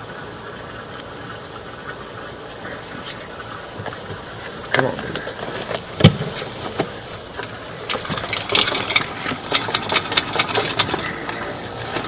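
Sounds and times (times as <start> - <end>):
motor running steadily: 0.0 - 12.0
irregular clicks and rattles: 3.0 - 12.0.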